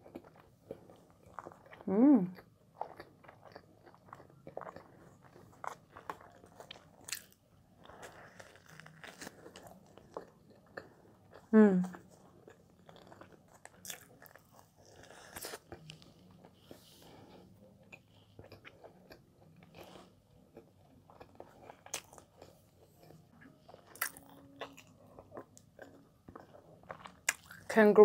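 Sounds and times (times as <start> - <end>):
biting bread: 0.0 - 16.6
chewing bread: 0.0 - 27.7.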